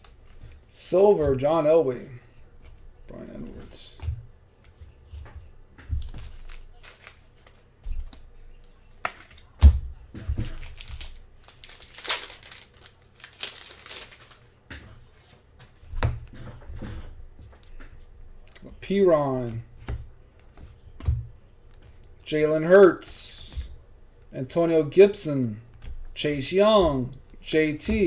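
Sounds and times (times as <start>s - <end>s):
card pack wrapper crinkling: 6.3s - 7.6s, 10.4s - 14.5s.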